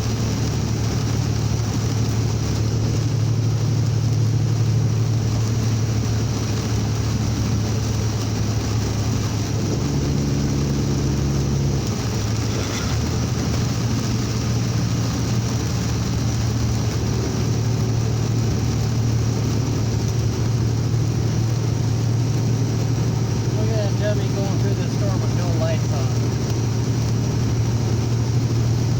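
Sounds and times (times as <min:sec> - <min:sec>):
heavy rain: 0:00.0 - 0:28.9
vehicle engine droning: 0:00.0 - 0:28.9
wind noise: 0:00.0 - 0:28.9
tyre noise: 0:11.8 - 0:14.4.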